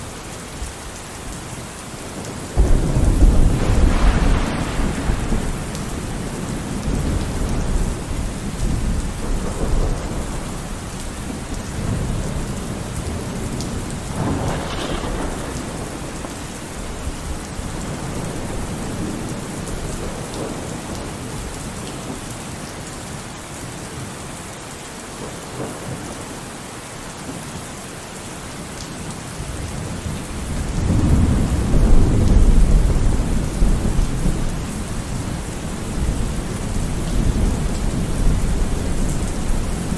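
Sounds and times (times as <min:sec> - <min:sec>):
steady rain: 0:00.0 - 0:39.9
rolling thunder: 0:02.6 - 0:21.1, 0:30.4 - 0:39.9.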